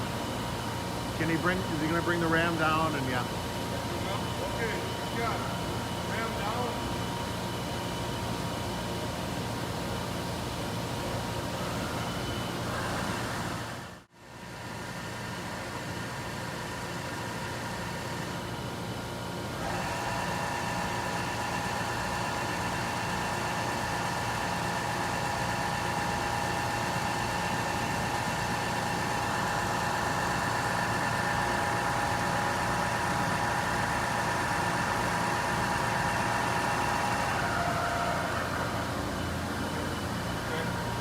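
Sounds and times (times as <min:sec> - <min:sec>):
machine drive electric whine: 0:15.4 - 0:41.0.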